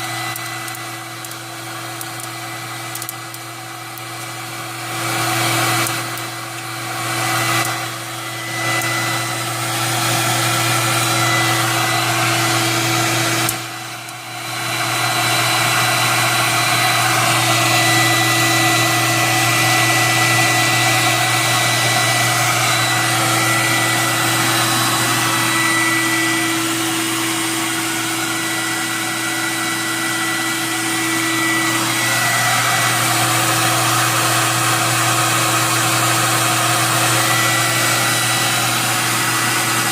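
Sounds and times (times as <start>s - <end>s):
popcorn popper fan whirring: 0.0s - 39.9s.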